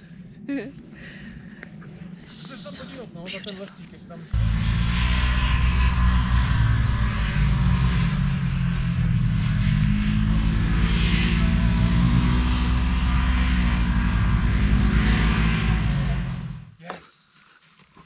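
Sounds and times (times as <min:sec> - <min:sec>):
road and wind noise: 0:00.0 - 0:16.8
truck engine drone: 0:04.3 - 0:16.7.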